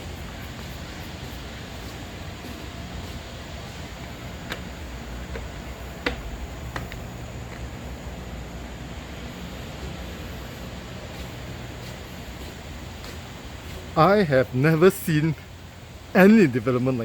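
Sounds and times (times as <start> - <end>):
insects buzzing faintly: 0.0 - 17.0
short sharp knocks: 5.3 - 7.0.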